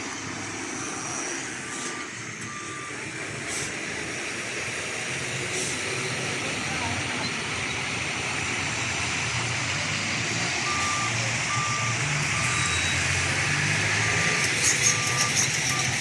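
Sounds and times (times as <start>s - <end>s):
engine humming low: 0.0s - 16.0s
reversing alarm beeping: 0.8s - 3.0s, 10.6s - 13.1s, 14.0s - 16.0s.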